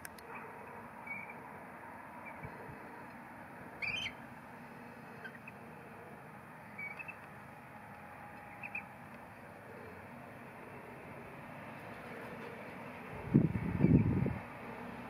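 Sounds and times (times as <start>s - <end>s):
steady outdoor hiss: 0.0s - 15.0s
high bird chirps: 3.8s - 4.2s, 6.8s - 7.2s.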